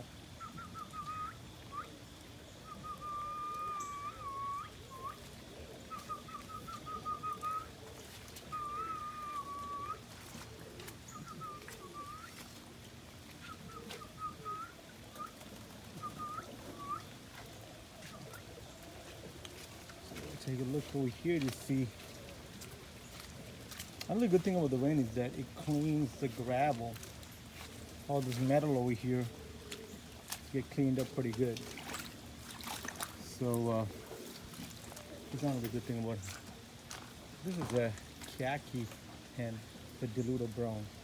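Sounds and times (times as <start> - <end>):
man whistling: 0.7 - 1.9, 2.6 - 5.2, 6.0 - 7.7, 8.5 - 10.0, 14.0 - 14.7.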